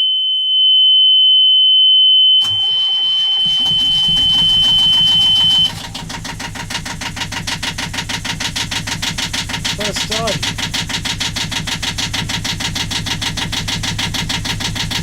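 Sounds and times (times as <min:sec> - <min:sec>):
warning buzzer high tone: 0:00.0 - 0:05.8
boat engine starting and idling: 0:02.4 - 0:15.0.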